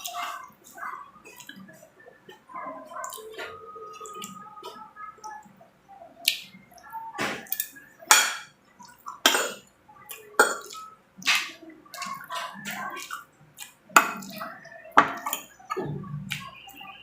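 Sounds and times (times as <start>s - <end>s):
wet chewing and mouth smacks: 10.1s - 14.6s.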